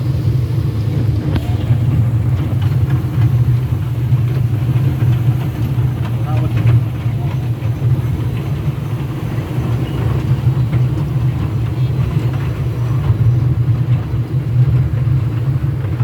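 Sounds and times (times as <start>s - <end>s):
mini train engine droning: 0.0s - 16.0s.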